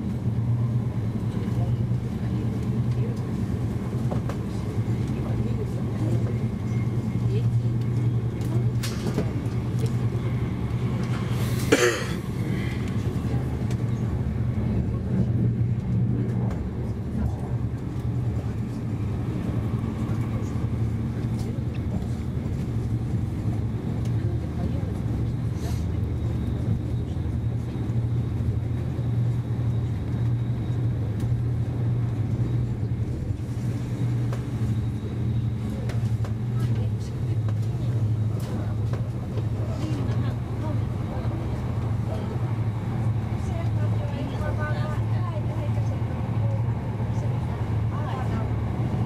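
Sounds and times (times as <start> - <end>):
train rumble inside carriage: 0.0 - 49.0.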